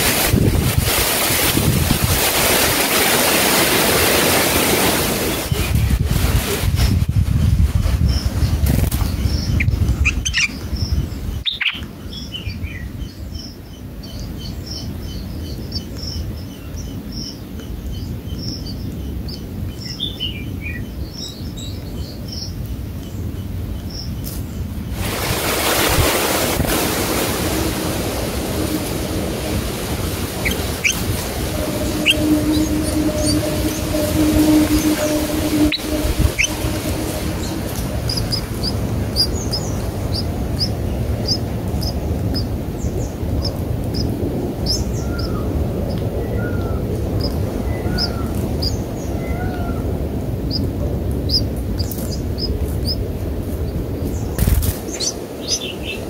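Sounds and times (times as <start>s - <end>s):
wind-like rushing noise: 0.0s - 56.0s
downward-sliding bird calls: 26.7s - 42.5s
high thin bird chirps: 30.4s - 41.4s.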